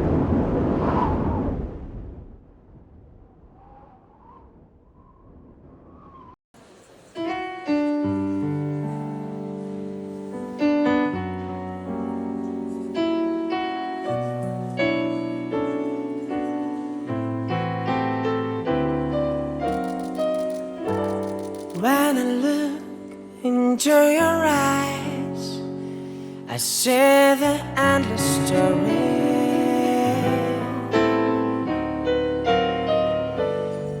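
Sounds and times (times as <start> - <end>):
piano playing slow chords: 7.2 - 34.0.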